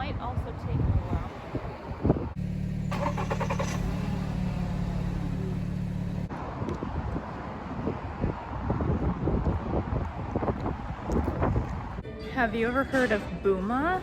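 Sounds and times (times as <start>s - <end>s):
vehicle engine humming: 2.3s - 6.4s.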